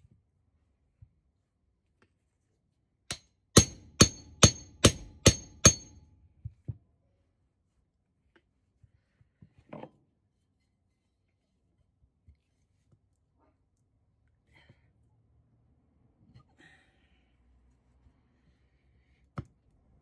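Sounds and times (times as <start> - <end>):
hammer striking metal: 3.6 - 6.0.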